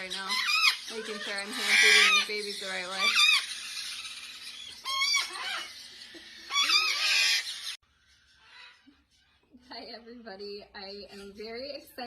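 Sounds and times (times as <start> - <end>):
baby parrots begging calls: 0.0 - 9.4.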